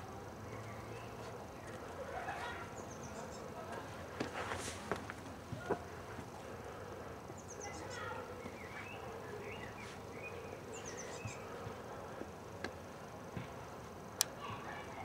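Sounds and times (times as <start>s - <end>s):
songbirds chirping and trilling: 0.0s - 15.0s
sharp clicks: 14.2s - 14.4s.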